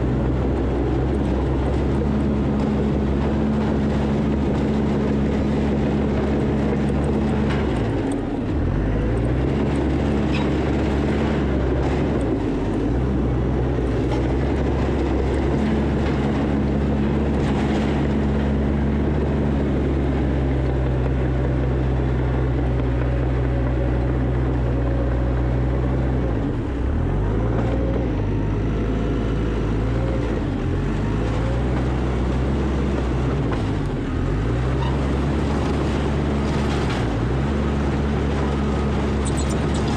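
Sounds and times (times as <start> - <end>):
heavy diesel engine bogging: 38.5 - 39.9.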